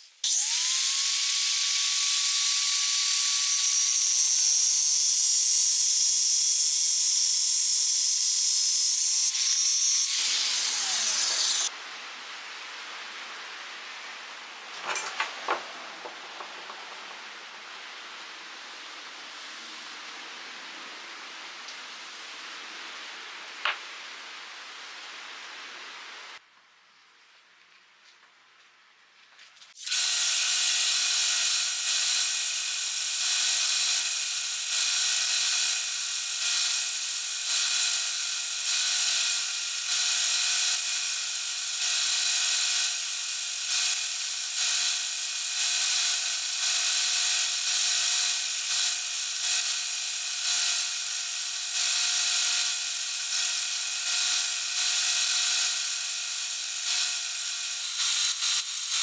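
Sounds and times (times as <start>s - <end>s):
small electric power tool running: 0.2s - 11.7s, 29.8s - 59.0s.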